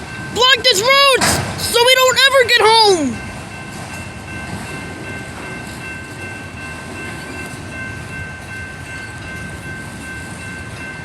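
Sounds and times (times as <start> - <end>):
train wheels rumbling: 0.0 - 11.0.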